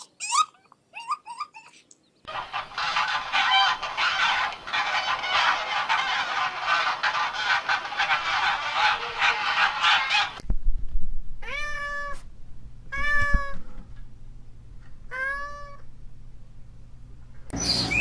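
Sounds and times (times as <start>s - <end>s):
geese honking: 2.3s - 10.4s
cat meowing: 11.4s - 12.3s, 12.9s - 13.6s, 15.1s - 15.8s.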